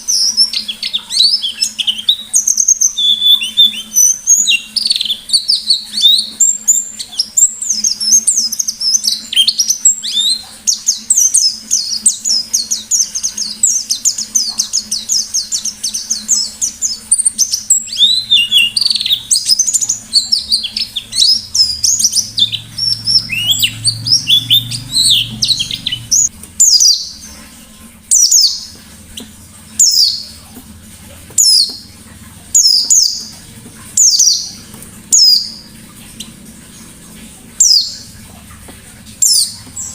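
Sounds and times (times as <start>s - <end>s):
sharp bird calls: 0.0s - 27.4s
bird twittering song: 0.0s - 39.9s.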